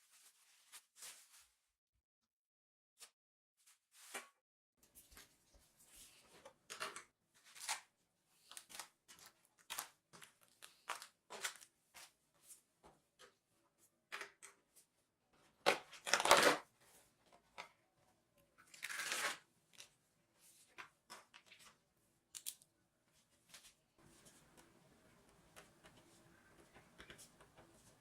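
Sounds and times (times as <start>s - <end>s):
plastic packaging rustling and crinkling: 6.2s - 12.2s, 15.7s - 16.7s.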